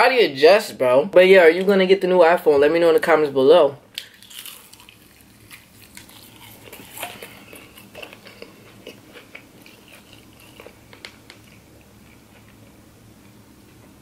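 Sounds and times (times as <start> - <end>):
crunchy chewing of fried chicken: 4.0 - 13.6.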